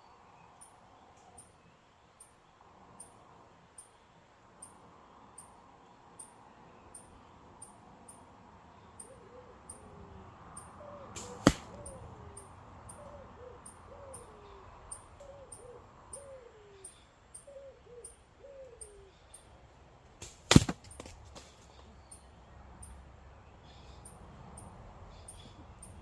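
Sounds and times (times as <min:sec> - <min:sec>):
bowstring snapping on release: 0:11.2 - 0:11.8.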